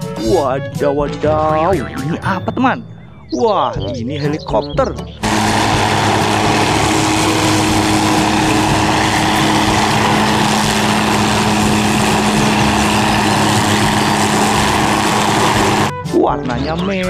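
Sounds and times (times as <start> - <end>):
helicopter hovering drone: 5.2 - 16.0.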